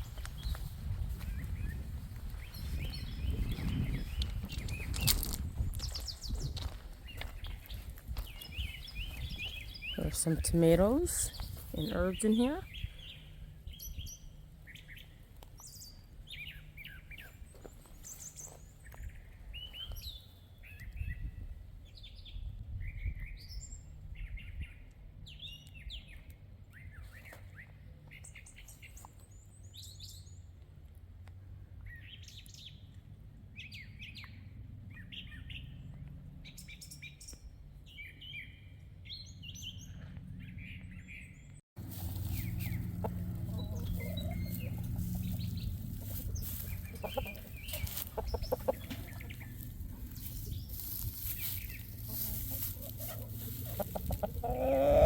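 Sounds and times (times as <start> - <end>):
songbirds chirping: 0.0 - 55.0
low background rumble: 39.6 - 54.5.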